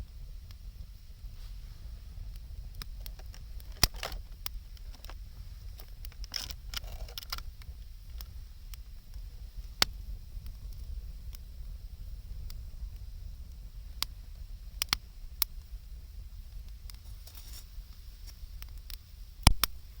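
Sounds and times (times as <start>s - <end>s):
campfire crackling: 0.0s - 20.0s
loud wood snaps: 2.8s - 5.2s, 19.4s - 19.9s.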